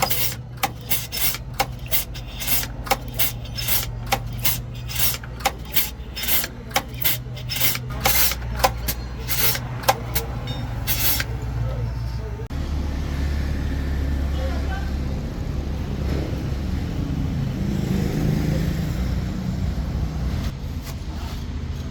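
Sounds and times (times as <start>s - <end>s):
hand tool scraping: 0.0s - 11.4s.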